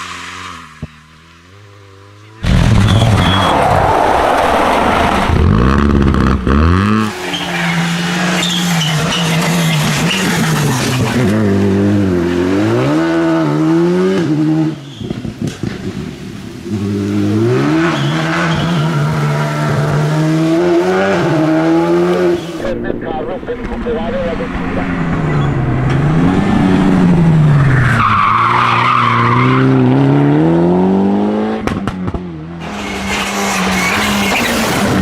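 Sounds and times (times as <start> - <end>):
rally car engine revving: 0.0 - 35.0
exhaust crackling pops: 22.8 - 26.2.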